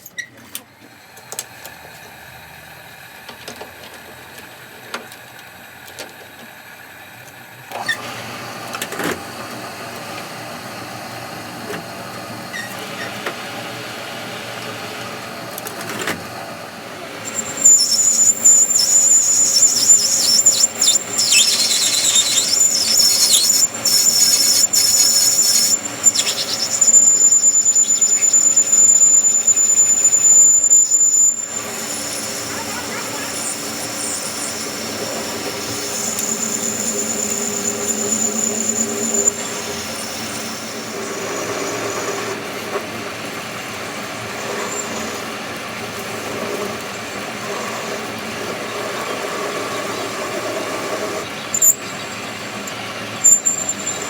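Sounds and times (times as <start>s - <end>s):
metalworking machine running: 9.6s - 54.0s
metal scraping: 17.2s - 40.7s
high-pitched squeal: 17.2s - 42.4s.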